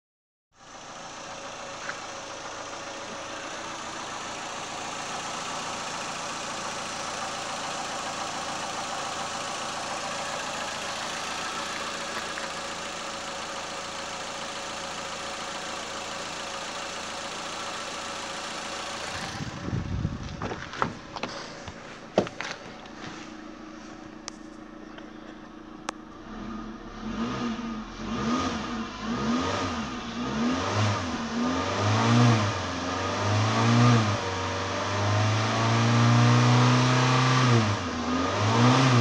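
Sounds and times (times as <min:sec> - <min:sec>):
car engine idling: 0:00.6 - 0:31.7.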